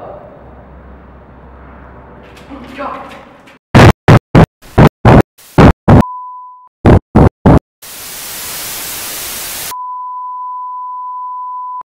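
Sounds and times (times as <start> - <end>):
loud clipped glitch bursts: 3.8 - 6.0, 6.8 - 9.7
brief beep: 5.9 - 6.7, 9.7 - 11.9
static hiss: 7.2 - 9.7
steady beep tone: 9.7 - 11.8.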